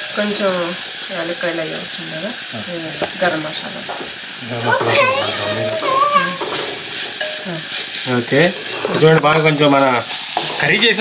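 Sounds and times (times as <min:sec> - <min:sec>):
frying sizzle in hot oil: 0:00.0 - 0:11.0
vigorous stirring in pot: 0:02.4 - 0:11.0.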